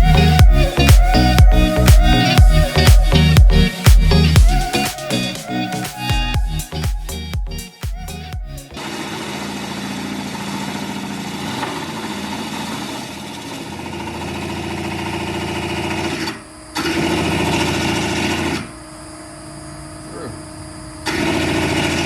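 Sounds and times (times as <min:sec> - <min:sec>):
drill press drilling steel: 0:08.8 - 0:18.8, 0:21.0 - 0:22.0.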